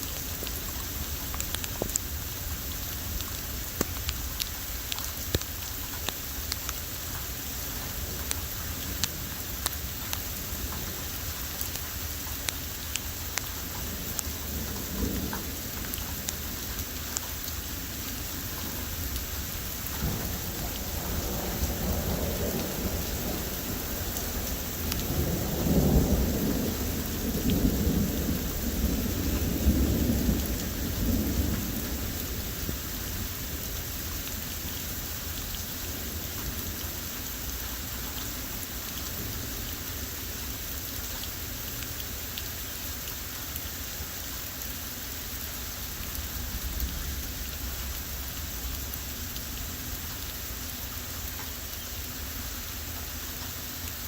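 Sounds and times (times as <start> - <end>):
heavy rain pouring: 0.0 - 54.0
wind gusts buffeting microphone: 19.5 - 33.9.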